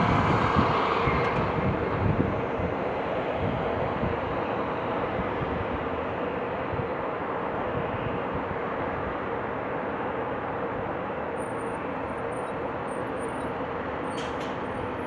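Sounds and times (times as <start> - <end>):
wind buffeting microphone: 0.0 - 6.9
jet engine noise: 0.0 - 8.8.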